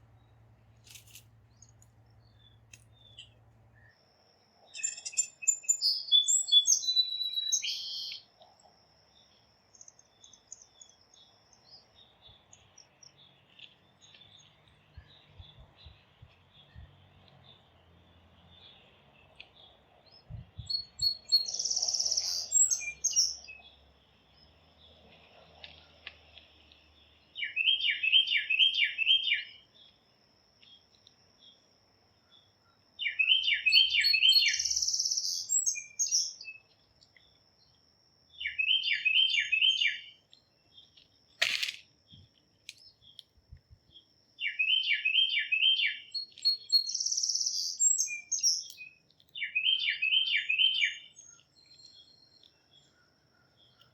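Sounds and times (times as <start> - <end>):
songbird singing: 0.0 - 53.9
sharp click: 41.4 - 41.8.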